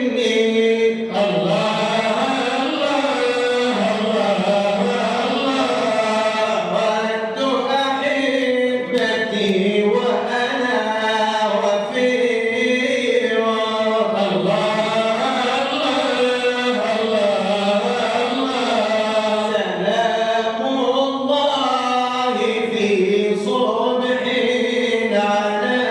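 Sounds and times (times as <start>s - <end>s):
man chanting devotional song: 0.0s - 25.9s.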